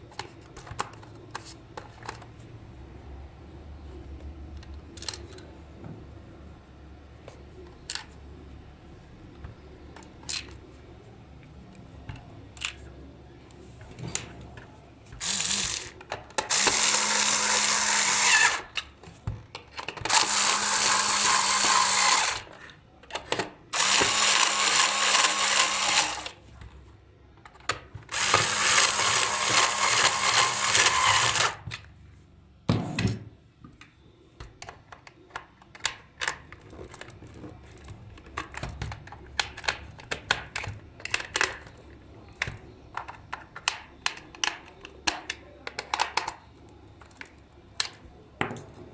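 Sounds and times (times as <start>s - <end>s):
electric power tool grinding: 15.2s - 18.7s, 20.1s - 22.5s, 23.8s - 26.3s, 28.1s - 31.6s.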